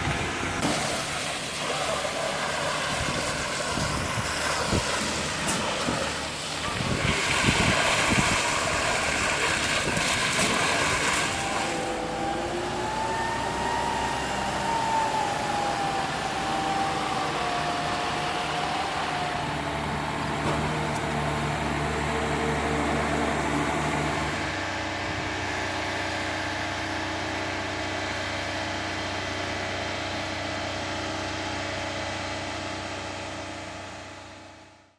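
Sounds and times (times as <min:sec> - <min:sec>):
heavy diesel engine running: 0:00.0 - 0:34.8
wavering whine: 0:10.8 - 0:20.4.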